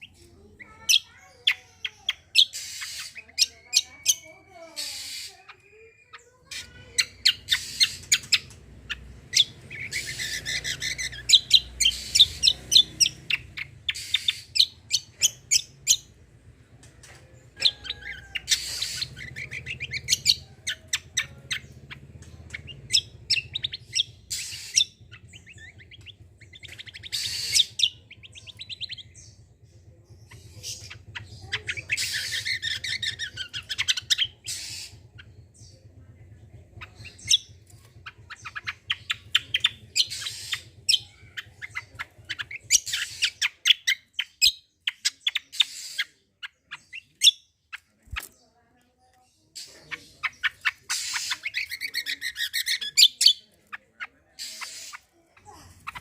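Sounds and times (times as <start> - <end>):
bird harsh raspy buzzing: 0.0 - 16.0, 18.0 - 20.8, 22.7 - 29.4, 30.6 - 35.0, 38.4 - 40.8, 50.3 - 53.5, 54.3 - 56.0.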